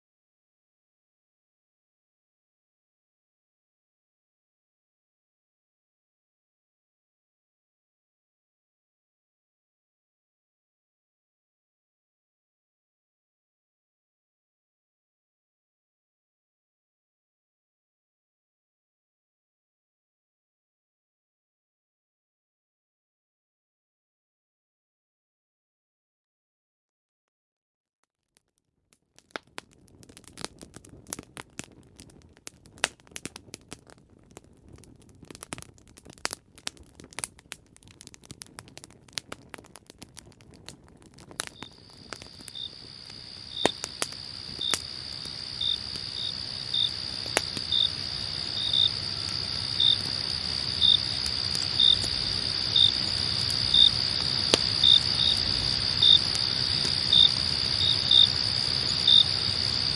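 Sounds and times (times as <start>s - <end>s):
campfire crackling and popping: 28.9s - 59.9s
crickets chirping: 41.5s - 59.9s.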